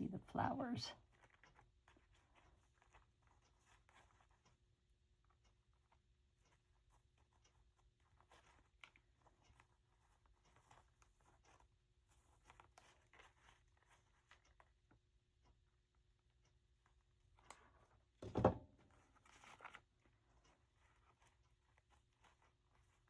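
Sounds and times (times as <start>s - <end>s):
paper rustling: 7.2s - 14.8s, 18.9s - 23.0s.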